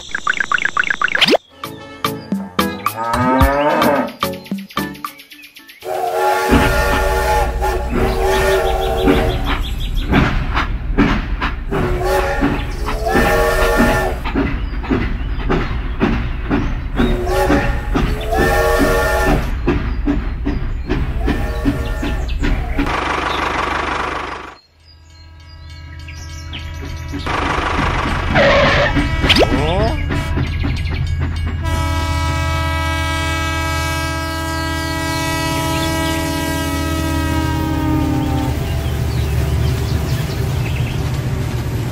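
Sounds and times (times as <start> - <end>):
quick rising chirps: 0.0 - 1.5
multi-note train whistle: 5.8 - 9.7, 11.8 - 14.3, 17.1 - 19.6, 21.2 - 22.4, 31.6 - 38.8
toy train chugging clatter: 17.0 - 24.6, 27.2 - 29.2.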